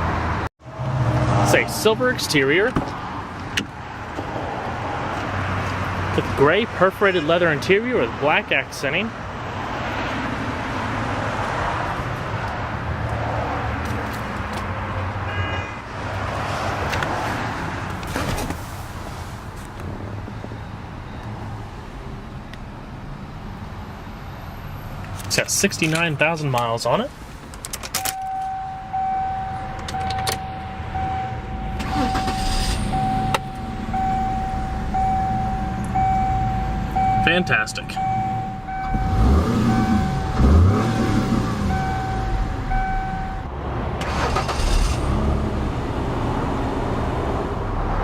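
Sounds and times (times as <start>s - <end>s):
car warning chime: 28.0s - 43.5s
short high beep: 28.2s - 40.4s
car engine idling: 28.2s - 44.8s.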